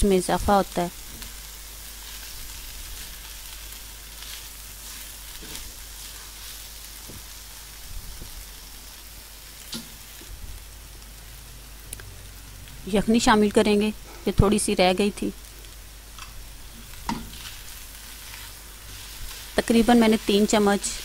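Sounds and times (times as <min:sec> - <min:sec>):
food sizzling in a wok: 0:00.0 - 0:21.0
wooden spatula scraping a pan: 0:16.8 - 0:21.0.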